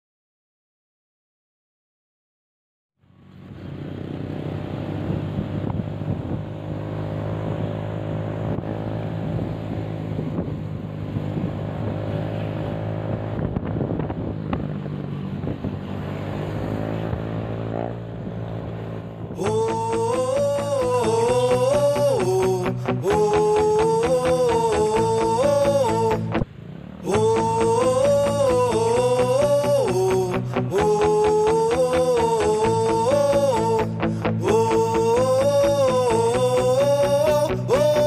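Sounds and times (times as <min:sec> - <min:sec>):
vehicle engine running: 0:03.0 - 0:38.0
music: 0:19.5 - 0:26.4, 0:27.2 - 0:38.0.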